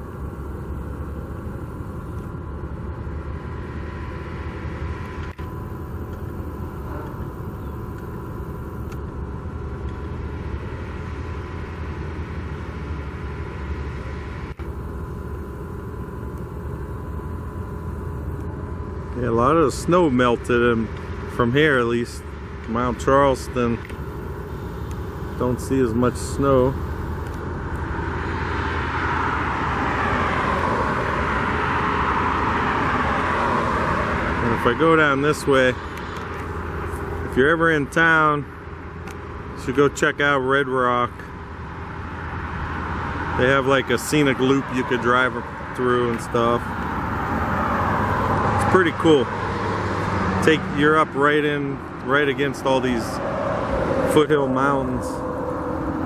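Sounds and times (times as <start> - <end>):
low outdoor rumble: 0.0 - 56.0.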